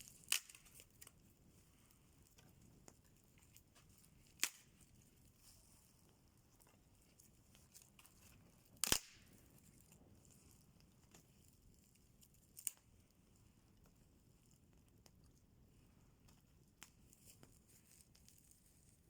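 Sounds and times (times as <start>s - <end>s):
campfire wood crackling: 0.0s - 11.7s.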